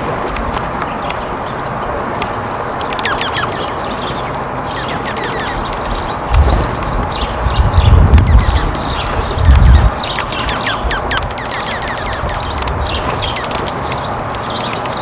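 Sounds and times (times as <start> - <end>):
songbirds chirping: 0.0 - 15.0
steady outdoor hiss: 0.0 - 15.0
loud low rumbles: 6.2 - 10.0.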